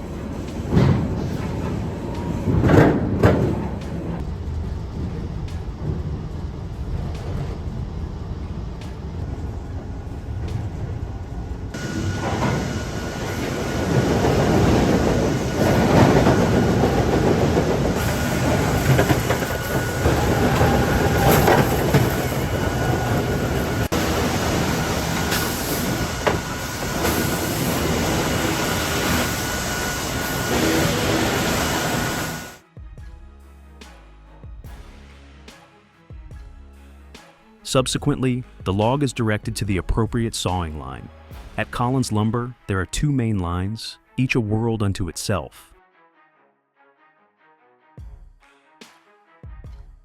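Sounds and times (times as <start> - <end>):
machinery clattering and knocking: 0.0 - 32.6
sawmill machinery rumbling: 0.0 - 32.6
high machine whine: 4.2 - 32.6.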